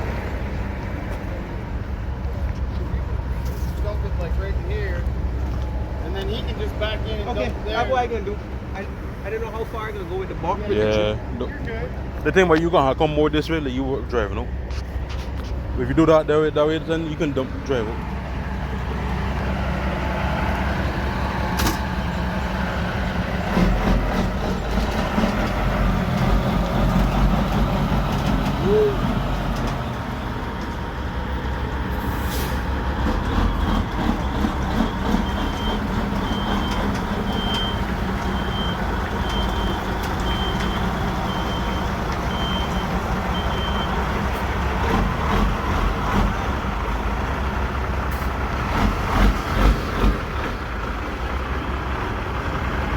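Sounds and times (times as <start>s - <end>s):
diesel truck engine running: 0.0s - 52.9s
reversing alarm beeping: 33.4s - 44.0s.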